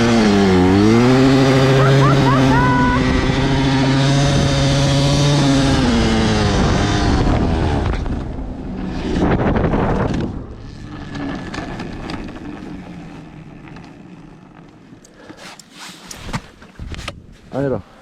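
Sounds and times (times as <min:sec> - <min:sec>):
dirt bike engine revving: 0:00.0 - 0:14.6
wind noise: 0:01.9 - 0:12.6, 0:16.2 - 0:17.5.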